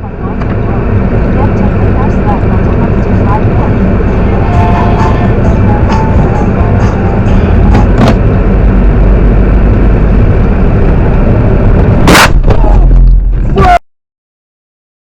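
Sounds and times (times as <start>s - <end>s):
car road and engine rumble: 0.0s - 13.8s
sharp thump: 7.6s - 8.4s, 11.9s - 12.7s.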